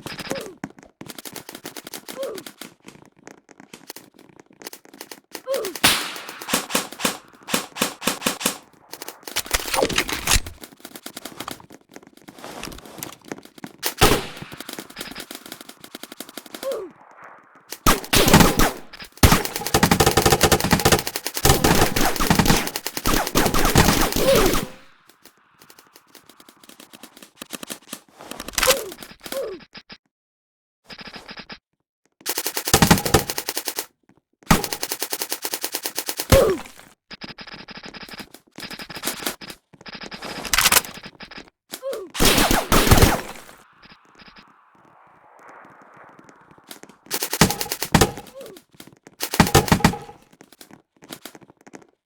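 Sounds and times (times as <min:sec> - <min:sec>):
automatic gunfire: 0:05.5 - 0:11.4, 0:13.8 - 0:25.0, 0:32.3 - 0:33.9, 0:34.5 - 0:36.8, 0:42.2 - 0:44.2, 0:46.0 - 0:48.5, 0:49.2 - 0:50.2.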